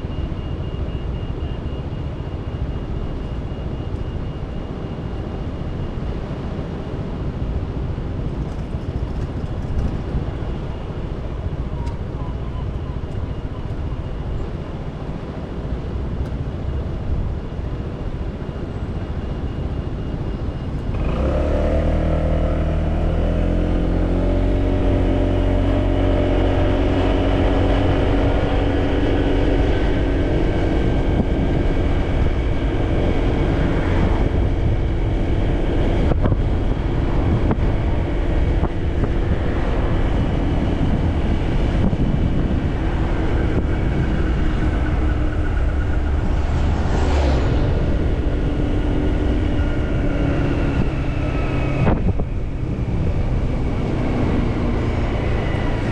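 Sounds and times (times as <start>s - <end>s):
rumbling road noise: 0.0s - 55.9s
motorcycle engine: 20.8s - 55.9s.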